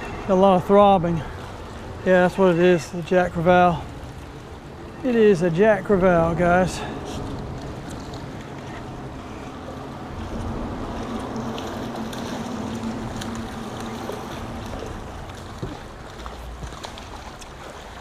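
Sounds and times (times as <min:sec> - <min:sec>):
low steady hum: 0:00.0 - 0:18.0
water around boat: 0:00.0 - 0:18.0
wind: 0:00.0 - 0:18.0.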